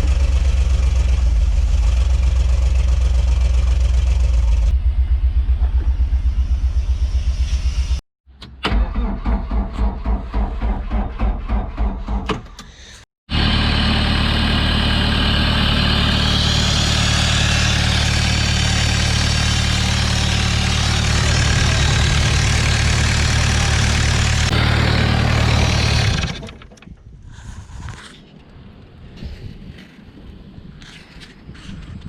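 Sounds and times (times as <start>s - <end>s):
heavy engine fast idle: 13.3s - 26.5s.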